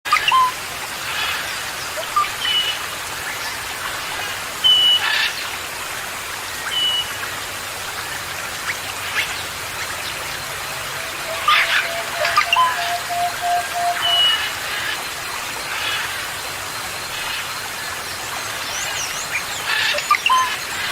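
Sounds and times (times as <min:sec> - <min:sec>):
running water hiss: 0:00.1 - 0:20.9
songbirds whistling and chirping: 0:00.2 - 0:00.6, 0:09.2 - 0:15.0, 0:18.7 - 0:20.9.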